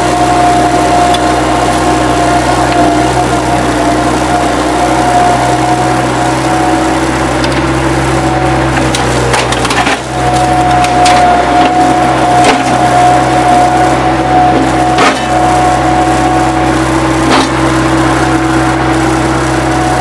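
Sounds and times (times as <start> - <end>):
skid-steer loader whining: 0.0 - 20.0
wood debris cracking: 8.7 - 16.5, 17.1 - 17.7.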